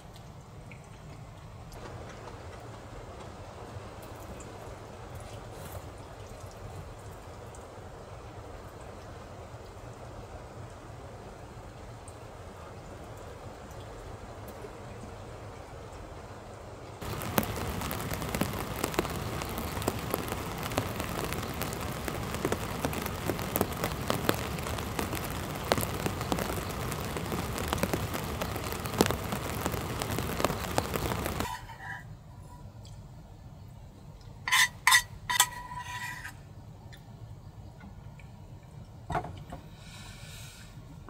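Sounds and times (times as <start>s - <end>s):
rain pattering on truck body: 0.0s - 31.6s.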